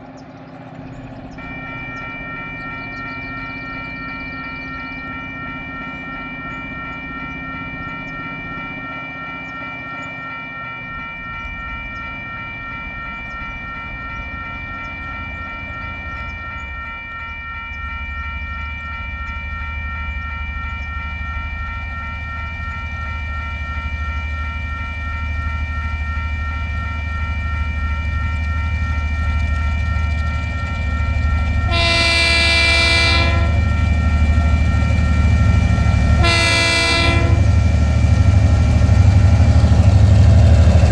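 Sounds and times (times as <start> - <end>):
diesel locomotive engine rumble: 0.0 - 40.9
level crossing warning alarm: 0.0 - 40.9
locomotive horn blast: 31.7 - 33.7, 36.1 - 37.8.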